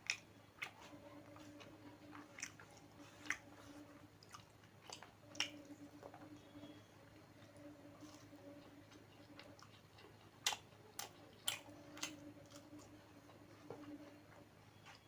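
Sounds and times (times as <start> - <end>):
wet mouth clicks: 0.0 - 0.8, 4.2 - 5.6
person chewing food: 0.0 - 15.0.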